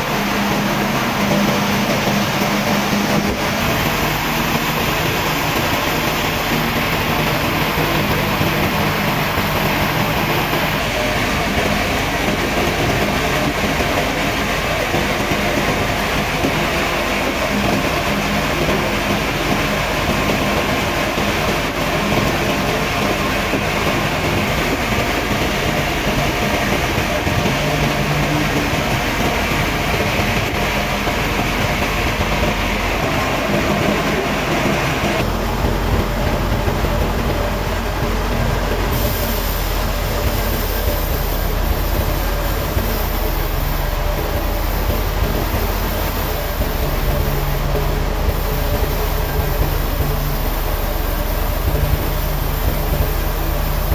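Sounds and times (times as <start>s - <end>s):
sawmill machinery running: 0.0s - 53.9s.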